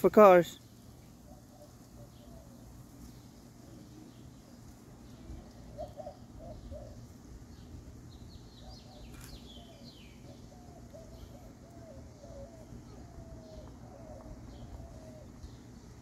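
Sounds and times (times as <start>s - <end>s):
bird wavering call: 1.2s - 2.7s, 5.1s - 7.2s, 8.4s - 15.7s.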